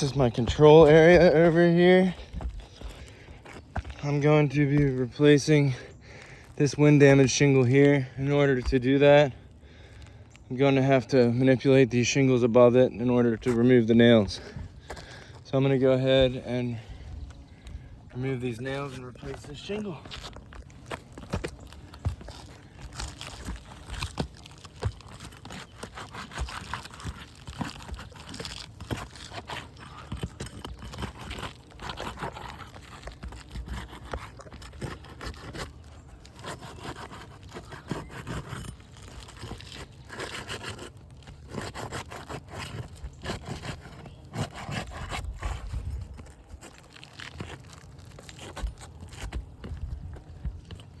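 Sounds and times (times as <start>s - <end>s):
roof shingles scraping and tearing: 12.4s - 51.0s.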